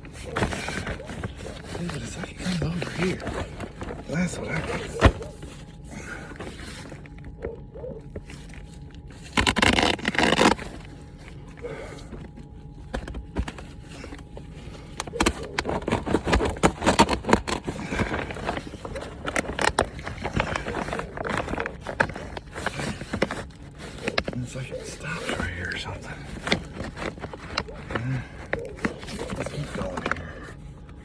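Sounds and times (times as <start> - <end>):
plastic sheet rustling and scraping: 0.0 - 31.0.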